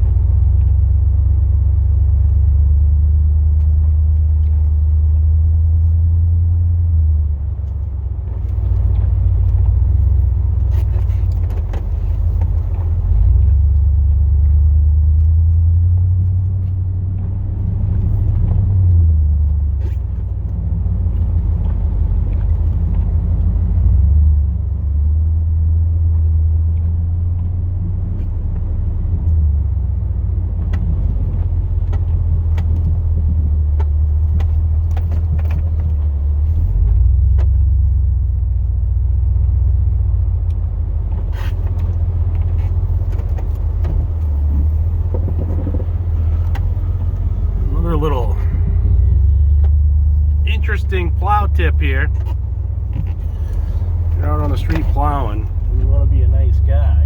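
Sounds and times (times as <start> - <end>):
truck engine running: 29.9 - 57.0.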